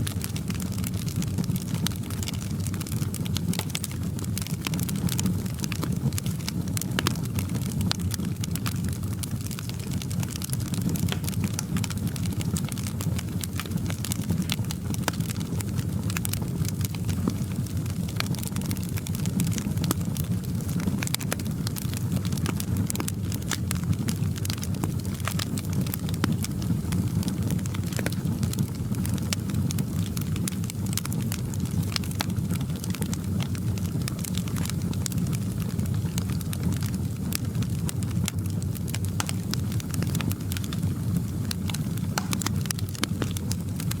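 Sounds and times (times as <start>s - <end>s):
wood fire crackling: 0.0s - 44.0s.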